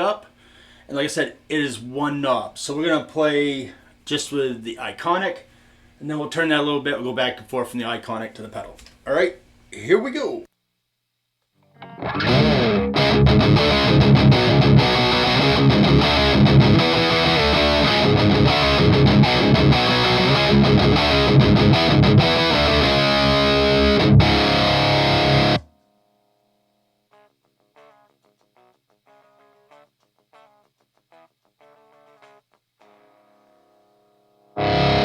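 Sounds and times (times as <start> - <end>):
distorted electric guitar riffing: 11.8 - 25.7, 34.5 - 35.0.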